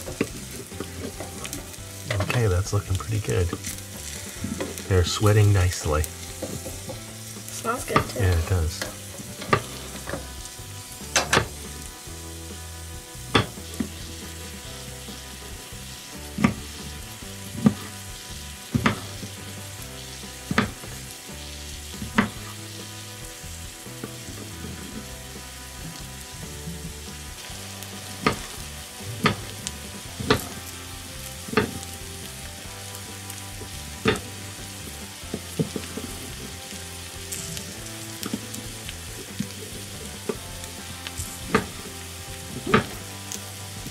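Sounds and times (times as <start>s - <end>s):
onions sizzling in oil: 0.0s - 43.9s
utensil tapping in pan: 13.4s - 14.0s, 18.8s - 19.3s, 28.1s - 28.5s, 29.1s - 30.7s, 31.4s - 31.9s, 34.0s - 34.4s, 41.1s - 41.8s, 42.6s - 43.0s.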